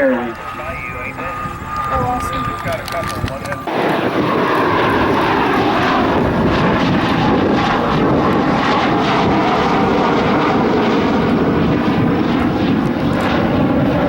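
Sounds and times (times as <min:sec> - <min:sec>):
jet engine roar: 0:00.0 - 0:14.0.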